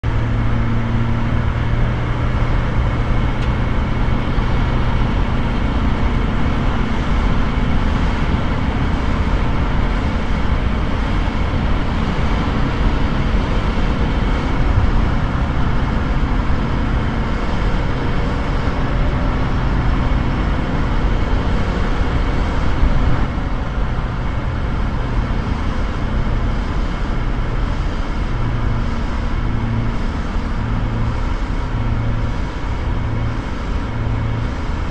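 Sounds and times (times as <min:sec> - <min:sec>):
diesel engine running: 0:00.0 - 0:34.9
odd engine noise: 0:00.0 - 0:34.9.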